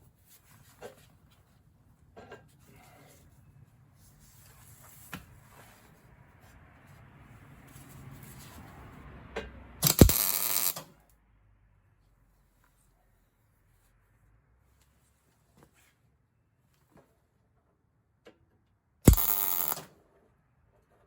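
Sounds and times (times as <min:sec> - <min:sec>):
faint shop noise: 0:00.0 - 0:21.0
clicks: 0:09.8 - 0:10.8, 0:19.1 - 0:19.9
welding arc crackle: 0:09.8 - 0:10.8, 0:19.1 - 0:19.9.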